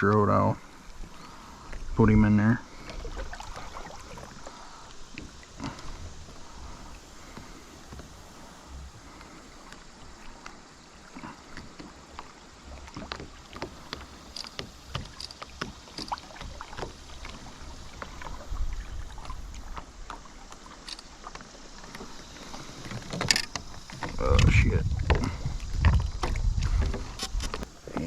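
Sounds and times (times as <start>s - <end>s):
light knocks and clicks of gear: 0.0s - 0.4s, 13.0s - 18.2s, 19.2s - 28.0s
wind buffeting microphone: 22.9s - 28.0s.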